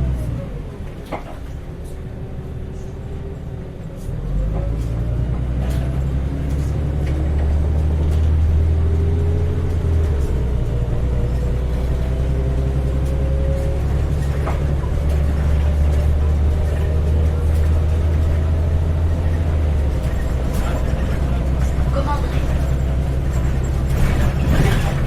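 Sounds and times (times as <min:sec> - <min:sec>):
bus engine accelerating: 0:00.0 - 0:25.0.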